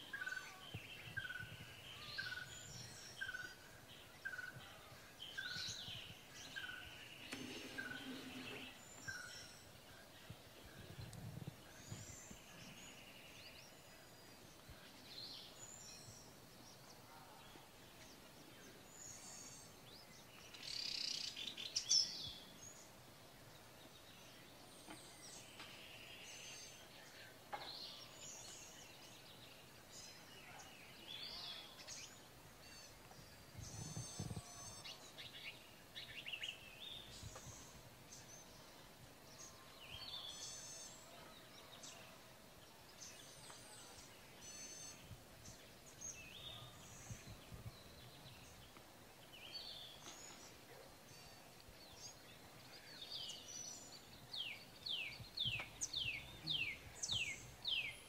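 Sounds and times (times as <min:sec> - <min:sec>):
birds chirping and trilling: 0:00.0 - 0:58.0.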